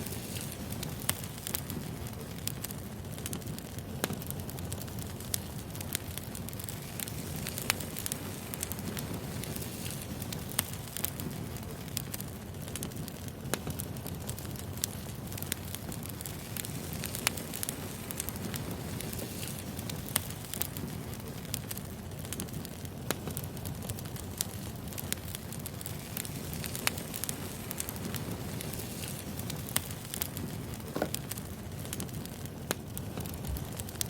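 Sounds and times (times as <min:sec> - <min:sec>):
fire crackles and pops: 0:00.0 - 0:34.0
firewood burning rumble: 0:00.0 - 0:34.0.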